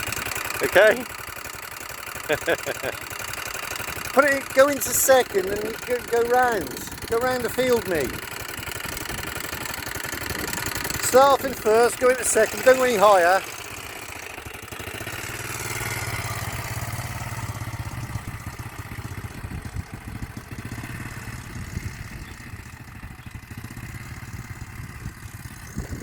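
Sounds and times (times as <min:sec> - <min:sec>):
quad bike engine pulling away: 0:00.0 - 0:26.0.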